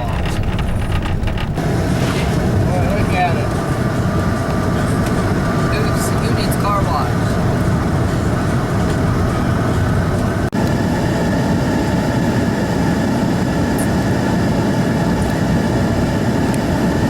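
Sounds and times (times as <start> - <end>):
tyre and wind noise: 0.0 - 11.3
vehicle engine: 0.0 - 17.0.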